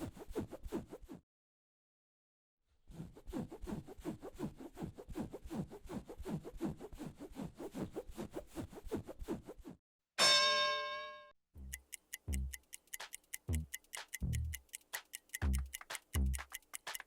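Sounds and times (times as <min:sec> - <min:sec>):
rapid scraping strokes: 0:11.8 - 0:17.0.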